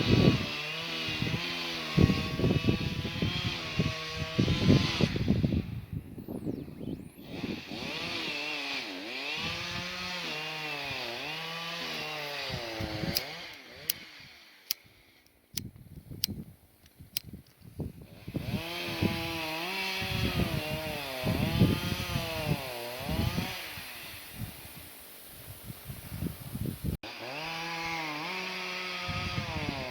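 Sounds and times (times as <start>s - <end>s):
chainsaw cutting wood: 0.0s - 5.8s, 6.8s - 16.4s, 17.2s - 25.1s, 25.9s - 29.9s
sharp clicks: 13.1s - 17.7s.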